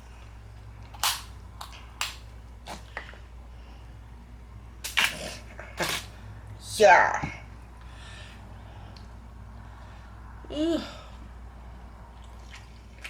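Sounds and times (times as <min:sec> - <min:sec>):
crab shells cracking: 0:00.8 - 0:02.4.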